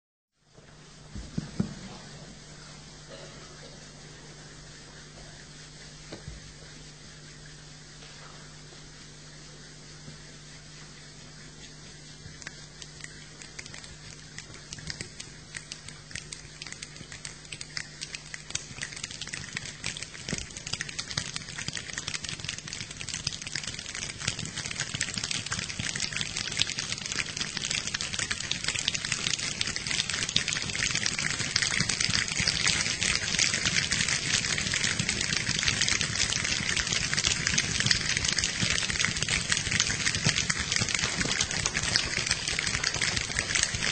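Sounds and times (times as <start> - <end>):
hands clicking imitating rain: 12.3 - 43.9.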